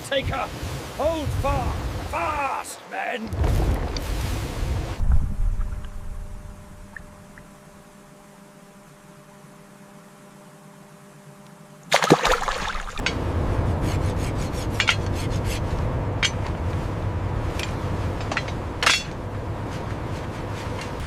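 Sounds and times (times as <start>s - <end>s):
water rushing and churning: 0.0s - 8.0s, 11.9s - 21.0s
sharp water splashes: 11.9s - 13.1s.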